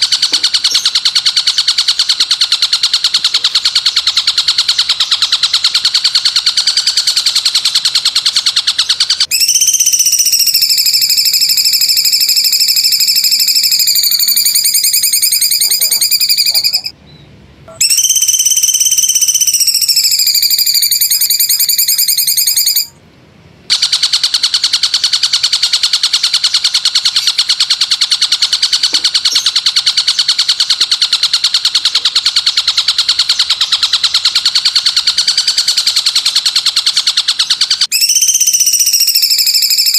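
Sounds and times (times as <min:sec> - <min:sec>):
shrill buzzing bird trill: 0:00.0 - 0:17.0, 0:17.7 - 0:23.0, 0:23.7 - 0:39.9
long piercing descending whistles: 0:09.2 - 0:16.9, 0:17.8 - 0:22.9, 0:37.7 - 0:39.9.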